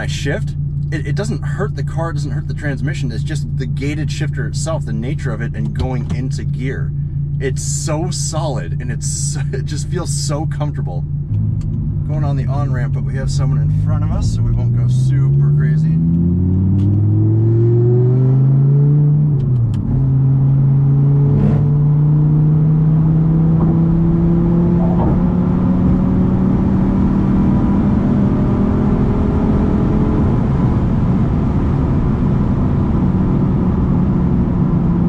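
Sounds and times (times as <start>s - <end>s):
car engine accelerating: 0.0s - 35.0s
sharp click: 16.1s - 17.0s.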